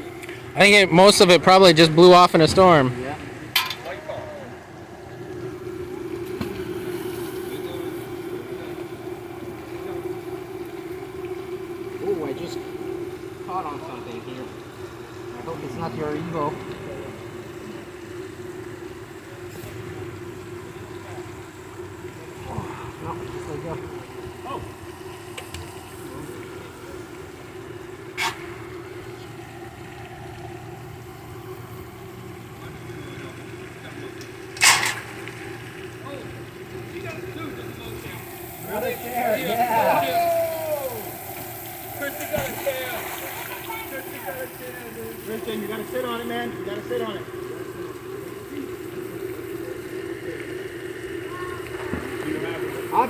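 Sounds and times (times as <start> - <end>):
steady engine hum: 0.0 - 25.2.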